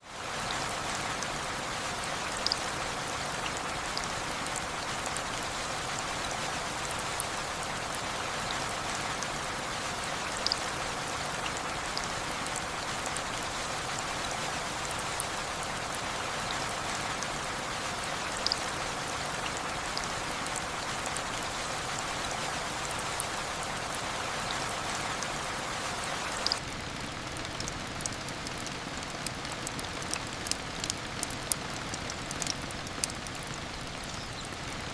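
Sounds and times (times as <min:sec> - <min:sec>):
rain falling on a roof: 0:00.0 - 0:34.9
sharp ticks: 0:26.5 - 0:34.6.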